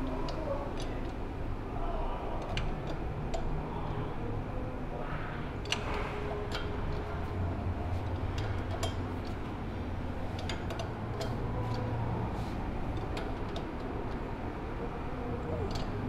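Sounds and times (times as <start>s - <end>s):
steady low hum: 0.0s - 16.0s
wrench clicking on metal: 8.2s - 9.4s, 10.3s - 11.9s, 15.6s - 16.0s.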